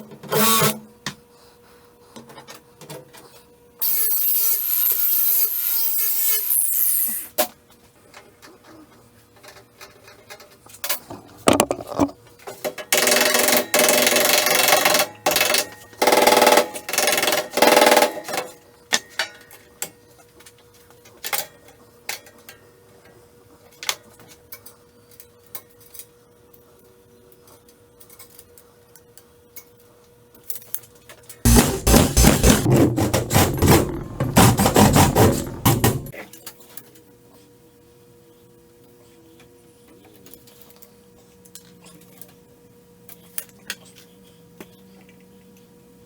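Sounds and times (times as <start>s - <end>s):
tool scraping: 3.8s - 7.3s, 11.5s - 12.2s, 31.5s - 36.1s
knocks and clicks of hand tools: 11.1s - 12.2s, 31.5s - 36.1s.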